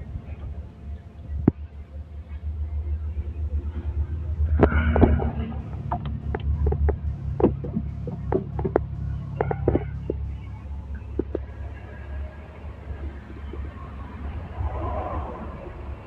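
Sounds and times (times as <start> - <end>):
diesel engine running: 0.0 - 16.0
sharp clicks and knocks: 4.4 - 11.6.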